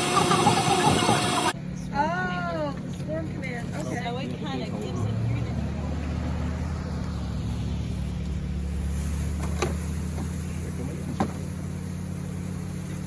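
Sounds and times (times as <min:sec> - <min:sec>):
motor humming: 0:00.0 - 0:01.6.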